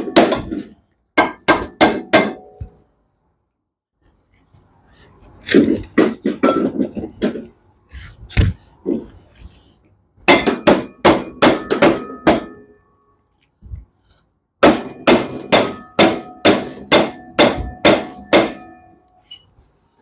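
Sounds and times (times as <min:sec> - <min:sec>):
hammer striking metal: 0:00.0 - 0:02.8, 0:10.3 - 0:12.8, 0:14.6 - 0:19.0.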